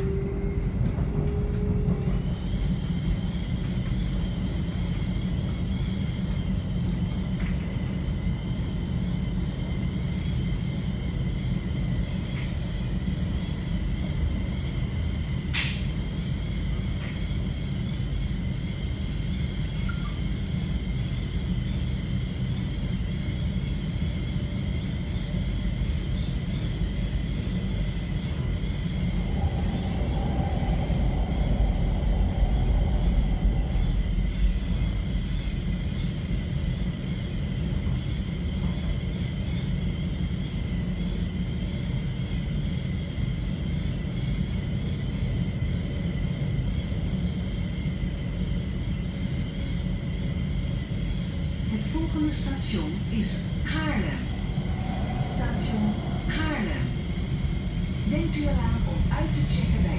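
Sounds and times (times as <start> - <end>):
train wheels rumbling on rail: 0.0 - 59.9
faint high whine: 15.8 - 59.9.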